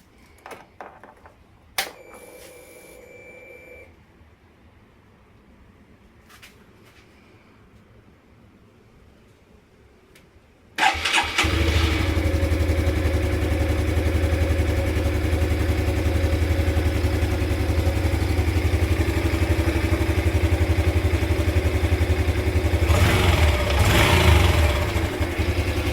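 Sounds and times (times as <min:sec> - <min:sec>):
motorcycle engine starting and idling: 0:10.8 - 0:25.9.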